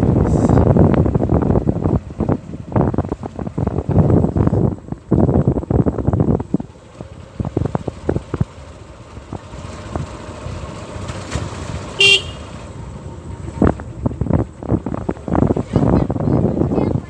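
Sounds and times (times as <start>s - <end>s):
wind buffeting microphone: 0.0s - 12.0s, 12.8s - 17.0s
vehicle horn beep: 12.0s - 12.5s.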